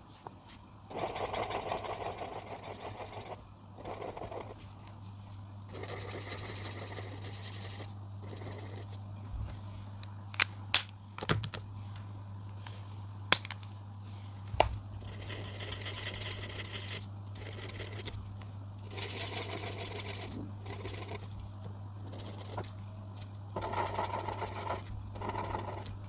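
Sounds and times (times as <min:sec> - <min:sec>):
steady low hum: 0:00.0 - 0:26.0
coloring tool scratching paper: 0:00.9 - 0:04.7, 0:05.7 - 0:09.0, 0:15.0 - 0:18.2, 0:18.8 - 0:22.8, 0:23.6 - 0:26.0.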